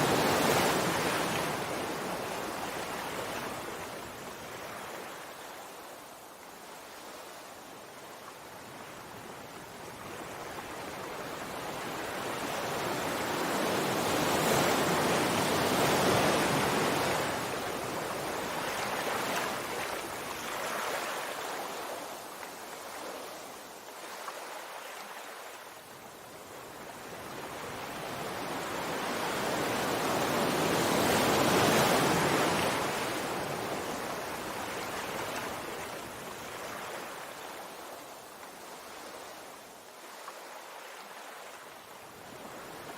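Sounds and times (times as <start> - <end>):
sea waves washing ashore: 0.0 - 42.9.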